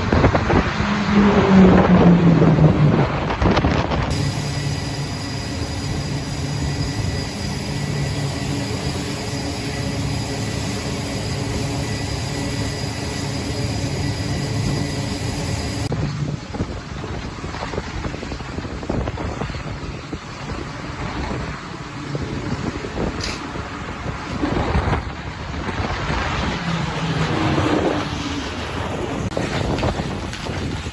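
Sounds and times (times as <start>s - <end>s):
low engine hum: 0.0s - 18.6s
aircraft turbine whine: 0.0s - 30.9s.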